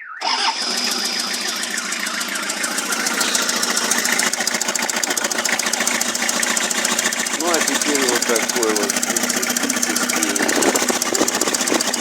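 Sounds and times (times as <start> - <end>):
diesel engine knocking: 0.2 - 12.0.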